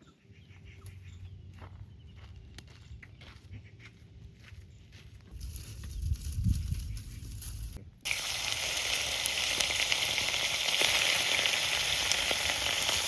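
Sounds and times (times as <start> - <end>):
food sizzling in hot oil: 8.0 - 13.0.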